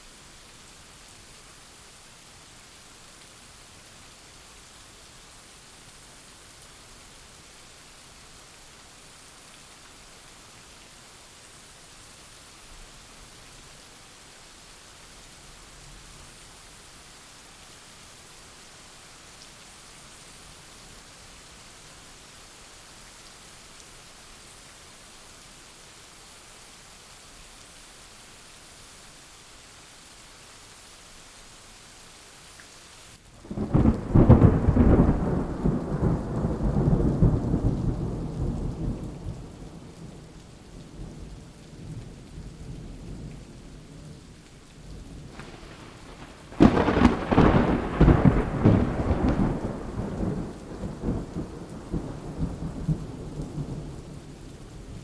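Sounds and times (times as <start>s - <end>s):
rain hissing: 27.2s - 55.0s
thunder rolling: 33.5s - 38.9s, 45.2s - 53.8s.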